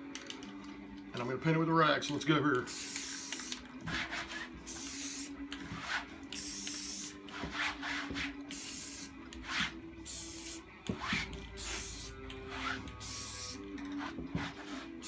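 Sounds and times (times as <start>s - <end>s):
rag rubbing on canvas: 3.8s - 4.6s, 5.7s - 6.2s, 7.3s - 8.4s, 9.4s - 9.8s, 10.9s - 11.8s, 12.4s - 13.0s, 14.0s - 15.0s.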